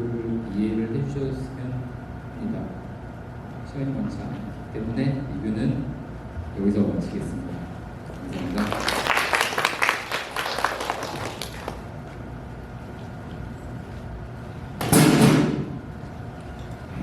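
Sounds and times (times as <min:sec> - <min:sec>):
small audience applause: 0:08.1 - 0:11.9.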